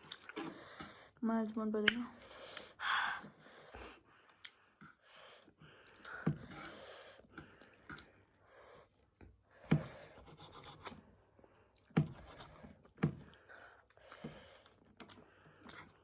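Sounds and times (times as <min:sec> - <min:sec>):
person chewing: 0:00.0 - 0:00.9, 0:03.8 - 0:09.2, 0:11.7 - 0:16.0.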